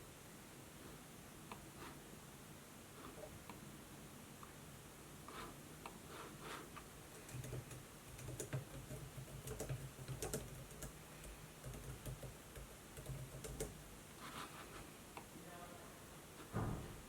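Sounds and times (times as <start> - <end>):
laptop keyboard typing: 7.1 - 13.8.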